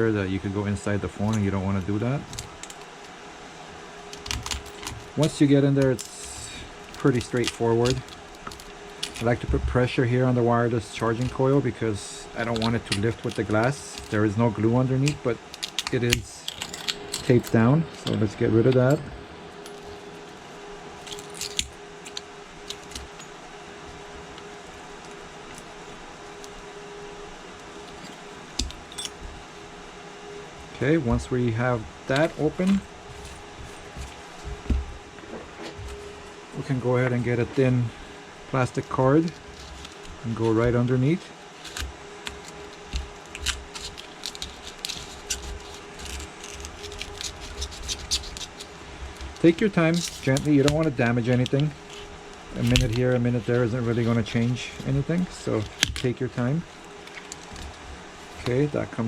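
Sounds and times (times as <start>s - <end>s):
faint steady hum: 0.0s - 59.0s
hand tool clicking and scraping: 4.1s - 9.4s, 11.0s - 14.4s, 15.0s - 20.4s, 21.0s - 23.4s, 27.8s - 29.2s, 41.6s - 53.1s.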